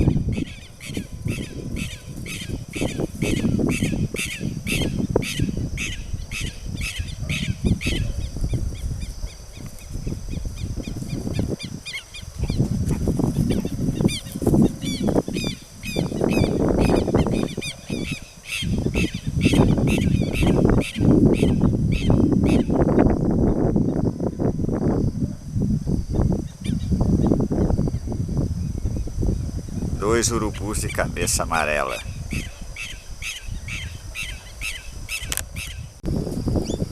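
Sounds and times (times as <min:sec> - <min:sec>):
wild birds calling: 0:00.0 - 0:22.9, 0:30.0 - 0:36.0.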